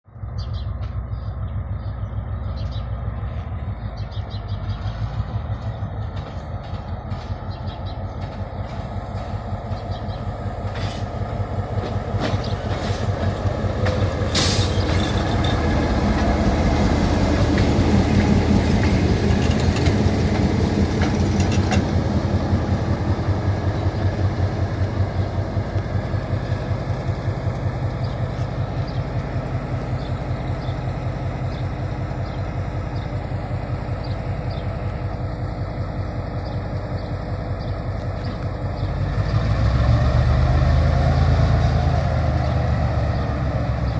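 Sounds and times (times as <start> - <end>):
locomotive engine rumble: 0.1 - 43.9
wheels clicking on rails: 11.7 - 23.4.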